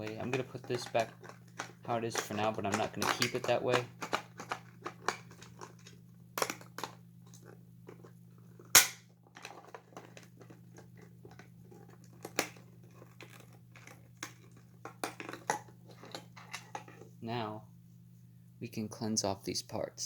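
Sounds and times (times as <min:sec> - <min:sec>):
plastic toy parts clicking: 0:00.0 - 0:08.1.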